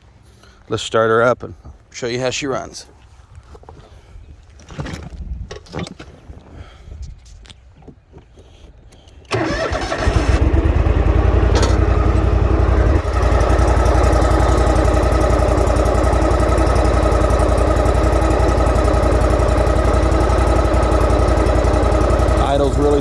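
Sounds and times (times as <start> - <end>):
engine starter cranking: 9.3 - 23.0
mower engine idling: 9.3 - 23.0.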